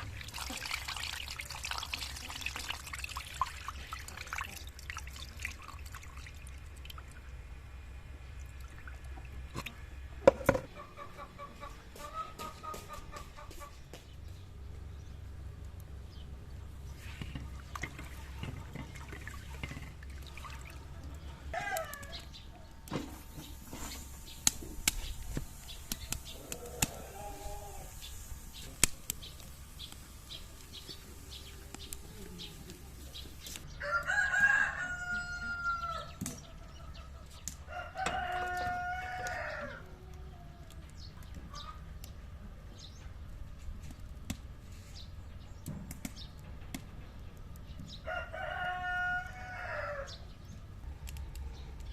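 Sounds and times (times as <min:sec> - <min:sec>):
rooster crowing: 0:21.5 - 0:22.2, 0:33.7 - 0:36.2, 0:37.6 - 0:40.5, 0:48.0 - 0:50.2.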